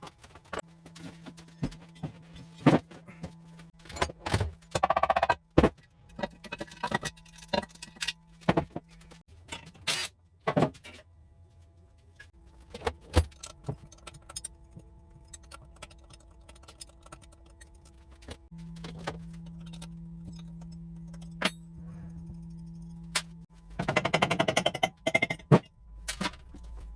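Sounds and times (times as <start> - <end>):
low hum: 0.2 - 9.3, 11.1 - 26.9
metal tools clinking: 6.1 - 8.5.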